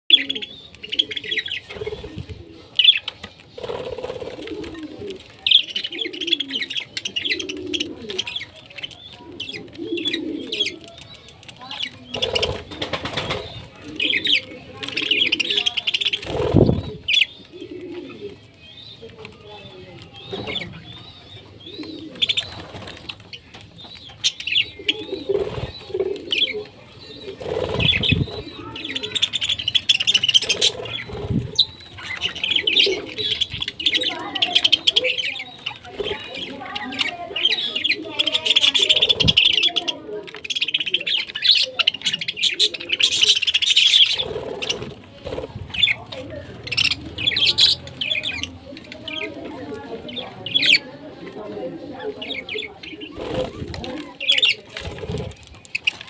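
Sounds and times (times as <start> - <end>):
low cooing calls: 0.1 - 11.3, 11.9 - 23.0, 24.3 - 55.2
wings flapping: 1.6 - 2.4, 3.1 - 5.4, 9.1 - 18.4, 21.8 - 23.4, 24.8 - 26.4, 27.2 - 35.0, 44.0 - 48.4, 53.0 - 56.0
parrots chirping: 5.2 - 51.0.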